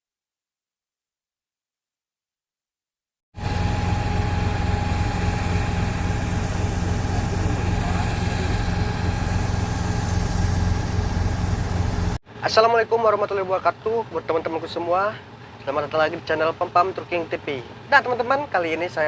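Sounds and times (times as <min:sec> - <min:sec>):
heavy engine idling: 0:03.4 - 0:12.2
thin steady hum: 0:03.4 - 0:12.2.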